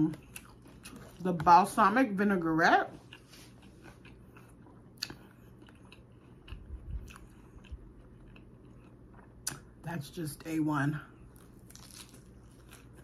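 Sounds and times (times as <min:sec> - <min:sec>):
faint chewing: 0:00.0 - 0:01.5, 0:02.9 - 0:09.7.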